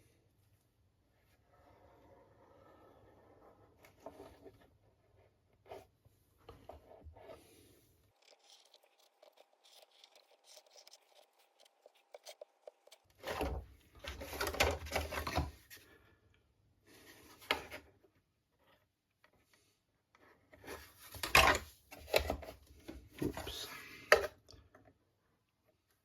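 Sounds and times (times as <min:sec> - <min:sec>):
wooden parts rubbing and scraping: 0:06.6 - 0:15.6.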